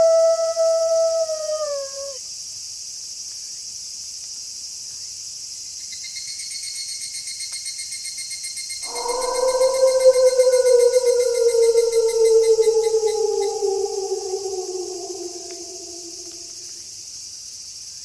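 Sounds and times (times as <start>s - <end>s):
crickets trilling: 0.0s - 2.2s, 8.8s - 16.8s
wolf howling: 0.0s - 2.2s, 8.8s - 16.7s
fast-pulsing cricket chirp: 8.8s - 16.8s.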